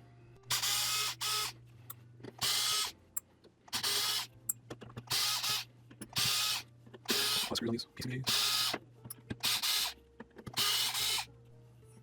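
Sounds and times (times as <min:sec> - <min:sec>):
electric screwdriver whirring: 0:00.5 - 0:01.5, 0:02.4 - 0:02.9, 0:03.7 - 0:04.3, 0:05.1 - 0:07.6, 0:08.3 - 0:08.8, 0:09.4 - 0:11.3.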